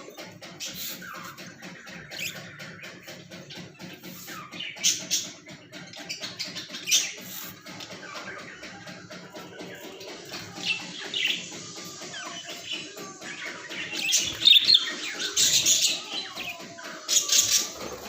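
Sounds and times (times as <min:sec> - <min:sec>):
budgerigars chirping: 0:00.4 - 0:08.6.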